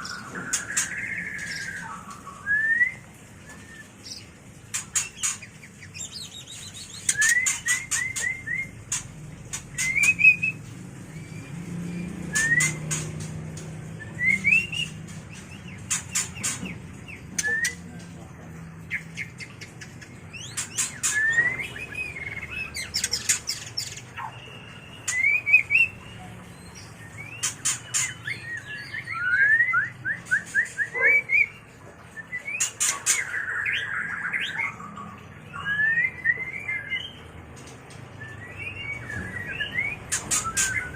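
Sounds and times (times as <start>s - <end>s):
sharp clicking bird calls: 0.0s - 2.4s, 3.5s - 11.3s, 12.2s - 18.2s, 18.9s - 29.4s, 30.2s - 35.7s, 36.3s - 40.9s
bird singing whistled phrases: 0.0s - 4.1s, 6.0s - 8.8s, 9.8s - 13.0s, 14.0s - 15.0s, 17.4s - 18.0s, 20.4s - 26.2s, 26.8s - 37.2s, 38.2s - 40.9s.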